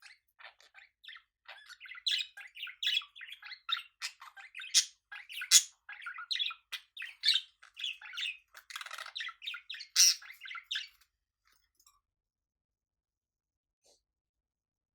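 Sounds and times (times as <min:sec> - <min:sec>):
budgerigars chattering: 0:00.0 - 0:10.9.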